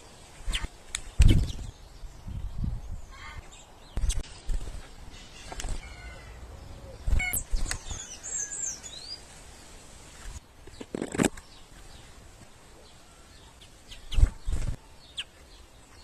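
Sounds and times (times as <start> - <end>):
bird chirps: 0.0 - 9.3, 12.8 - 16.0.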